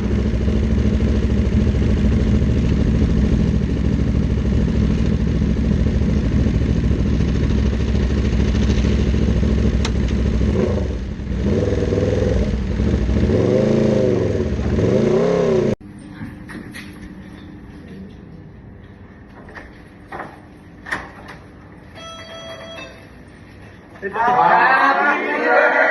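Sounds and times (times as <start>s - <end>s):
motorcycle engine revving: 0.0s - 15.8s.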